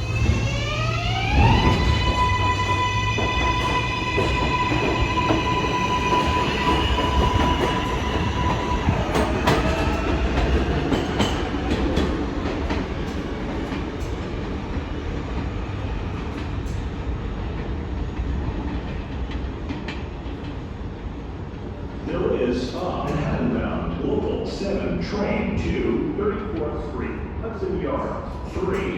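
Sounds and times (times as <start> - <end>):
train motor whine rising in pitch: 0.0 - 8.3.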